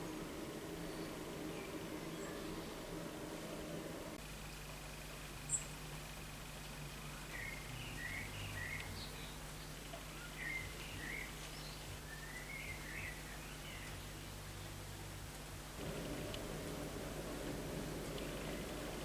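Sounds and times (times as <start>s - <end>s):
low electrical hum: 0.0s - 19.0s
small birds chirping: 7.0s - 14.4s, 17.8s - 19.0s.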